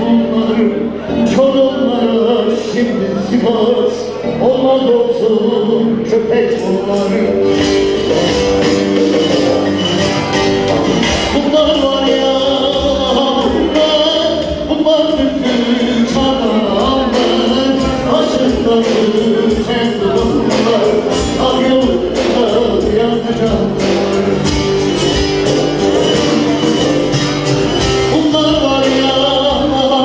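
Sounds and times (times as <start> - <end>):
amplified folk band playing: 0.0 - 30.0.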